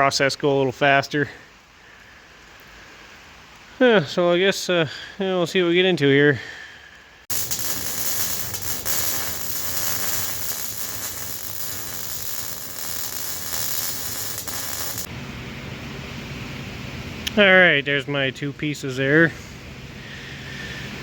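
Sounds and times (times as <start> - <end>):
arc welding crackle: 7.3 - 15.1
low hum: 7.3 - 15.9.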